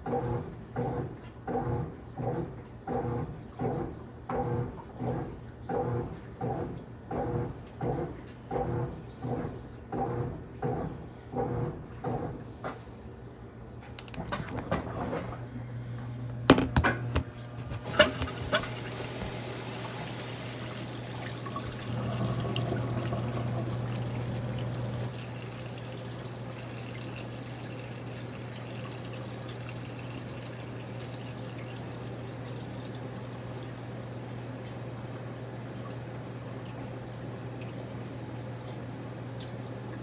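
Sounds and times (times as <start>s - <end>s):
drain pump hum: 0.0s - 40.0s
water pouring out: 18.4s - 33.7s.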